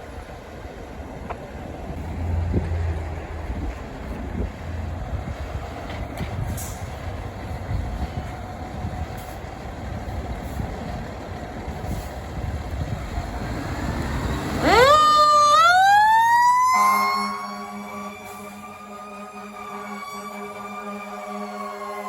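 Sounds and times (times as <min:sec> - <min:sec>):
fire truck engine rumbling: 0:00.0 - 0:22.0
mechanical siren wailing: 0:14.4 - 0:22.0
steady horn tone: 0:16.6 - 0:22.0.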